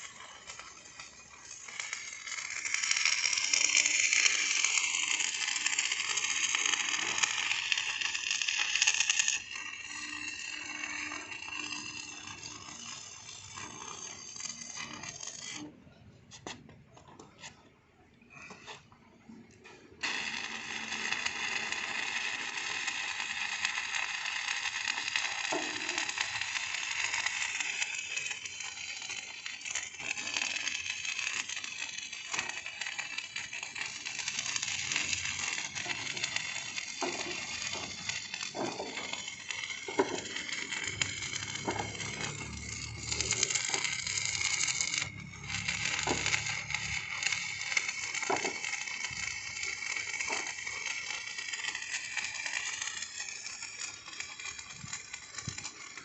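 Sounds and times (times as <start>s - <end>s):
arc welding crackling hiss: 0.0s - 15.7s, 20.0s - 56.0s.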